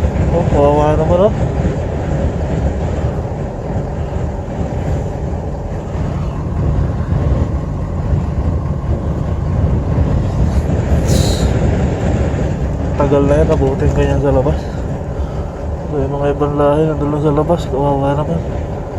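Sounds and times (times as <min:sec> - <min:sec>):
strong wind against vehicle: 0:00.0 - 0:18.9.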